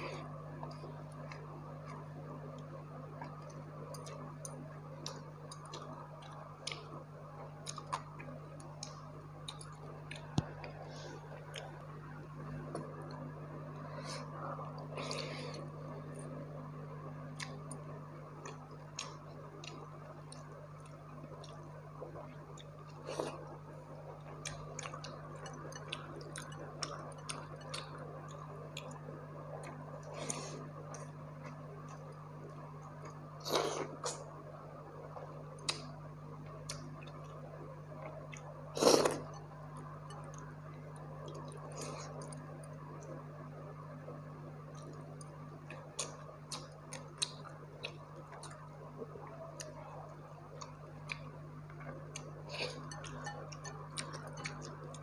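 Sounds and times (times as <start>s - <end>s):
steady low hum: 0.0s - 55.0s
chewing and lip smacks: 7.6s - 10.8s, 17.3s - 23.4s, 24.2s - 34.2s, 35.5s - 37.4s, 44.7s - 55.0s.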